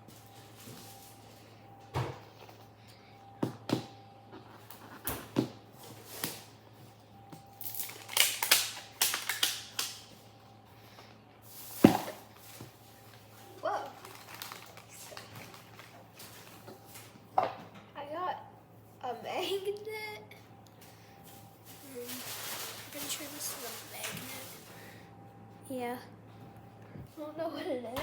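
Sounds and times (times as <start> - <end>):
crinkly plastic rustling: 7.6 - 9.9, 11.6 - 17.2, 21.4 - 24.8.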